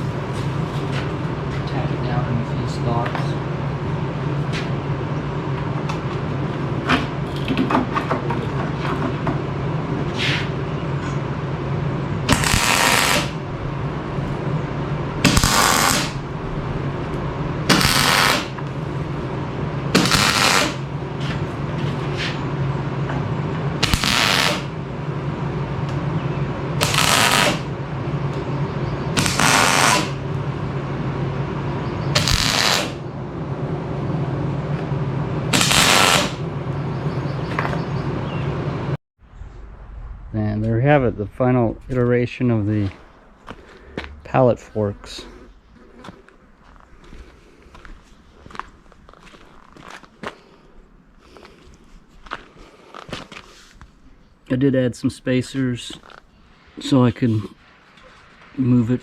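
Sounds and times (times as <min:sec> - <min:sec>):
welder low hum: 0:08.3 - 0:59.0
welding arc crackling: 0:12.2 - 0:19.2, 0:19.9 - 0:21.0, 0:23.8 - 0:24.8, 0:26.8 - 0:27.8, 0:29.1 - 0:30.4, 0:32.1 - 0:33.0, 0:35.5 - 0:36.5.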